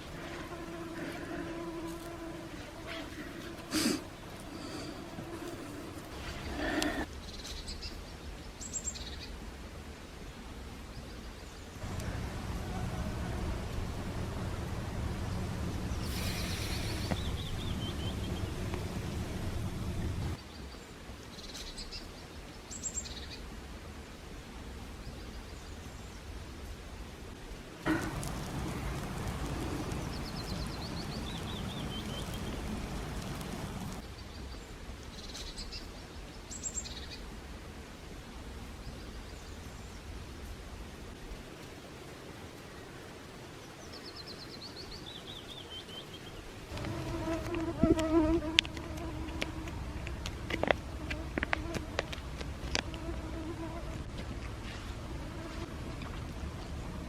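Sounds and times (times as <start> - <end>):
flying insect buzzing: 0.0 - 7.1, 16.0 - 20.4, 46.7 - 54.2
low background rumble: 11.8 - 20.4
small bird chirping: 15.8 - 18.8.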